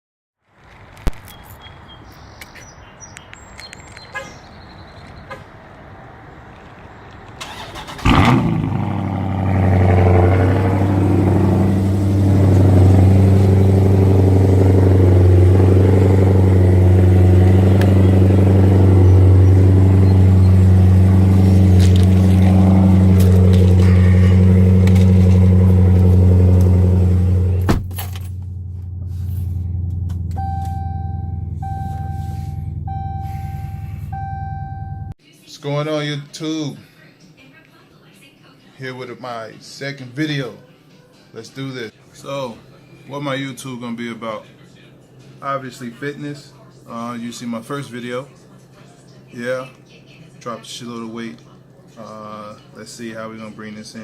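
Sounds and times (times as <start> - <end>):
car engine running: 7.9 - 35.1.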